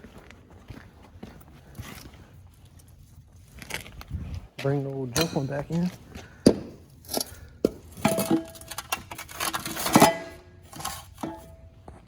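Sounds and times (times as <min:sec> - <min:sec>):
metal muffler clanking and ringing: 0:08.0 - 0:09.1, 0:09.7 - 0:11.7.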